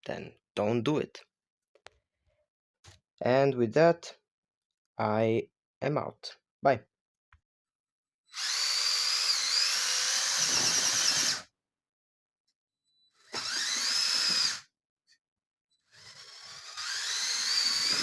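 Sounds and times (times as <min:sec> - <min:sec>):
toy truck motors whirring: 0:08.3 - 0:11.5, 0:13.2 - 0:14.7, 0:15.9 - 0:18.0.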